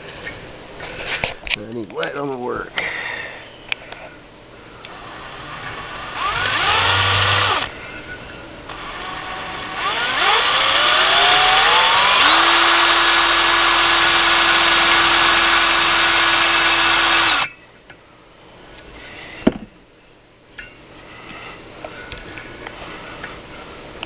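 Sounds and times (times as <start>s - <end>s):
electric drill whining: 4.9s - 7.7s, 8.7s - 17.5s.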